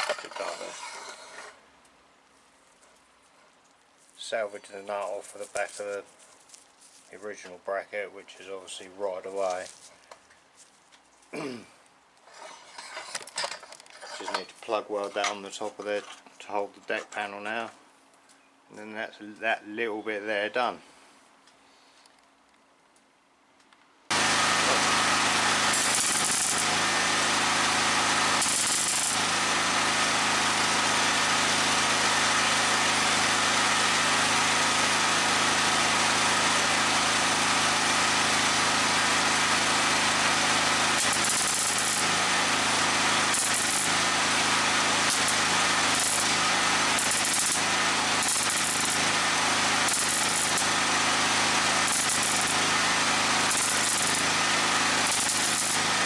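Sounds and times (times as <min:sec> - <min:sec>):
welder buzzing crackle: 0:24.1 - 0:56.0.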